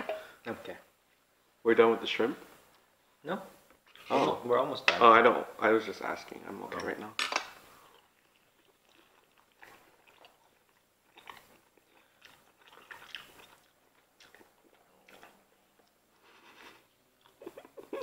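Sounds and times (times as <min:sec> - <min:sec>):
person chewing: 0:07.7 - 0:18.0.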